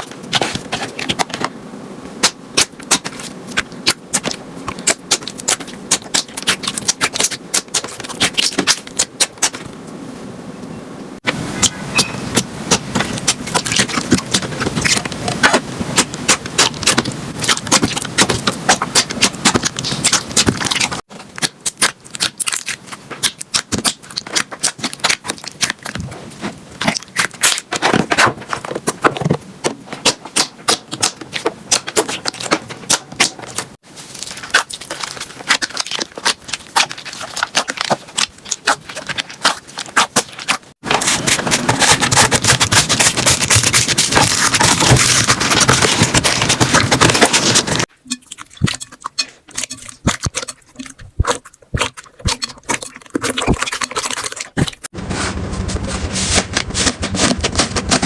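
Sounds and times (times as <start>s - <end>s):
slime squeezed crackling and popping: 2.2s - 9.6s, 13.0s - 26.0s, 34.2s - 54.9s.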